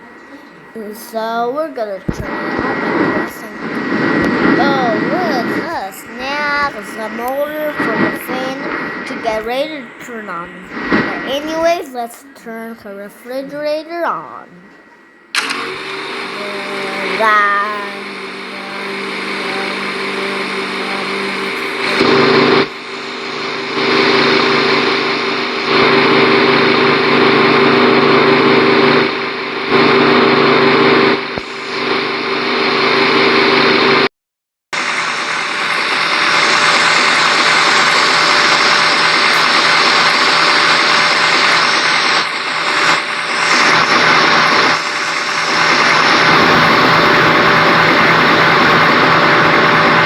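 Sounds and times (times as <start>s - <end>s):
electric fan motor whirring: 0.0s - 34.0s, 34.8s - 50.0s.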